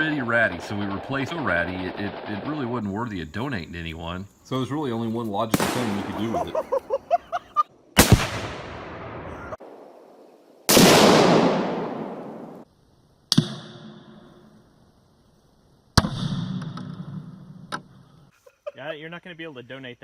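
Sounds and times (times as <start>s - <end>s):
rifle fire: 0.0s - 3.0s, 5.5s - 6.6s, 8.0s - 9.8s, 10.7s - 12.6s
exploding targets: 0.0s - 3.6s, 5.5s - 6.6s, 8.0s - 9.8s, 10.7s - 12.6s.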